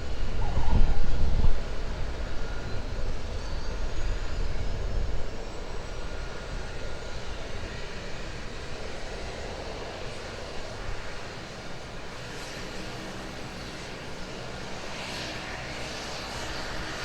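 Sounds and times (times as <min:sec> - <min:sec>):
aircraft engine noise: 0:00.0 - 0:17.0
wind buffeting microphone: 0:00.0 - 0:17.0.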